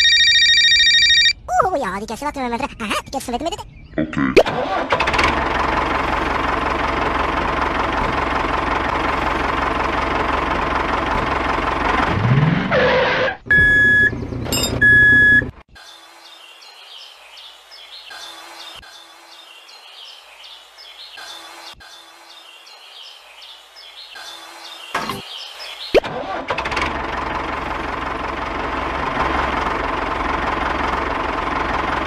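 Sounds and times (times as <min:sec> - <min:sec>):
toy tractor engine: 0:04.6 - 0:12.1, 0:26.0 - 0:32.0
electronic reversing beeps: 0:13.5 - 0:15.5.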